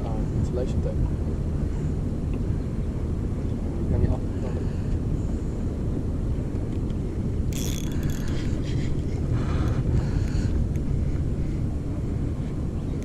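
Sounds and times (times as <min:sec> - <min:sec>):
wind rumble on microphone: 0:00.0 - 0:13.0
fishing reel rattling: 0:07.5 - 0:08.6.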